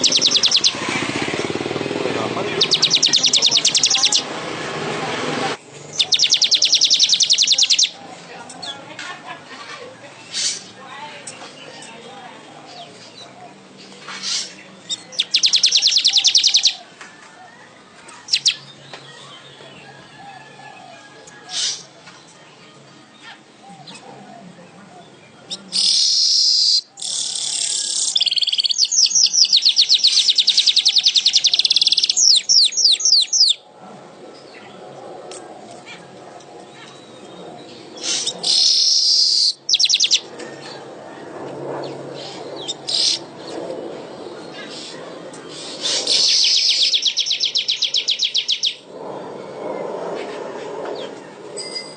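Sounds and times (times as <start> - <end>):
weaver bird singing rattle: 0.0 - 0.8, 2.5 - 4.2, 5.8 - 8.0, 14.0 - 16.8, 18.2 - 18.7, 25.7 - 33.6, 38.0 - 40.3, 42.6 - 43.3, 45.5 - 48.8.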